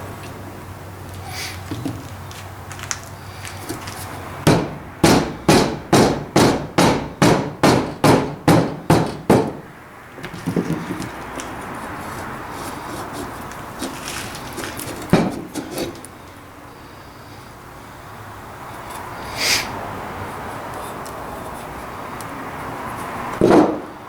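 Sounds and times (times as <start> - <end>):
hammer striking metal vise: 4.5 - 10.4, 15.1 - 16.1.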